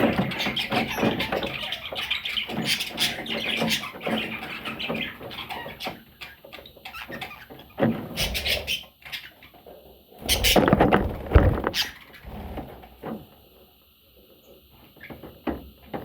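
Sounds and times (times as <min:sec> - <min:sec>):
parrot scrabbling and rustling: 0:10.2 - 0:13.0.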